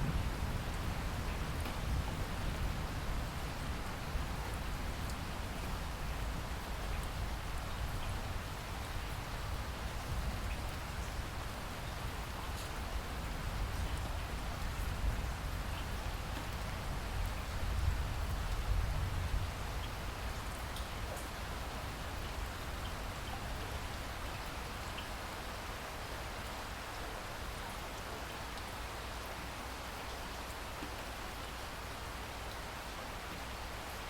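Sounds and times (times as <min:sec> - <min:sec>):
raindrop ticks: 0:00.7 - 0:01.8, 0:19.8 - 0:21.4.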